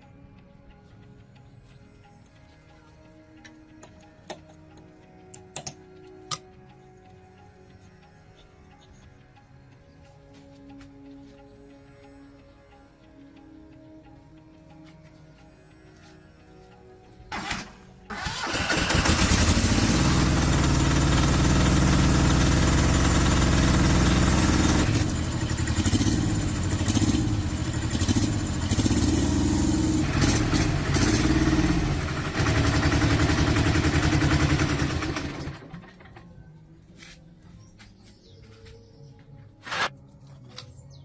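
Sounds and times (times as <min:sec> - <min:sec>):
tractor engine running: 0:17.3 - 0:36.2.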